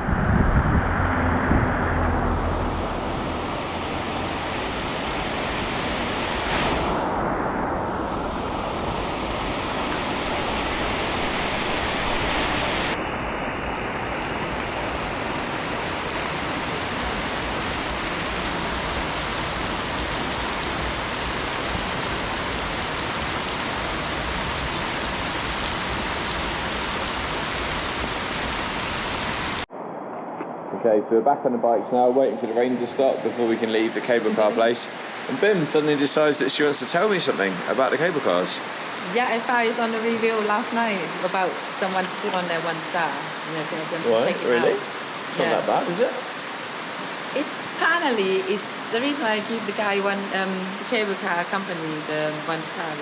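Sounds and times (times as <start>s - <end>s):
low rumble: 0.0s - 5.7s
heavy rain on hard surfaces: 1.9s - 7.1s, 7.7s - 29.7s, 32.6s - 53.0s.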